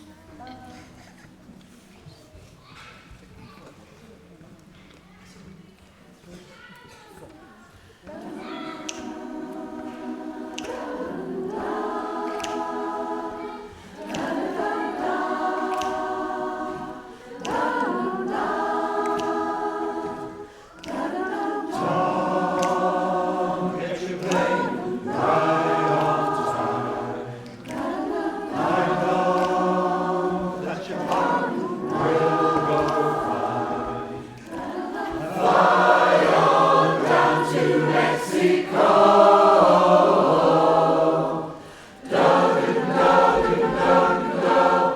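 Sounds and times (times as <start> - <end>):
choir singing in harmony: 7.8 - 44.9.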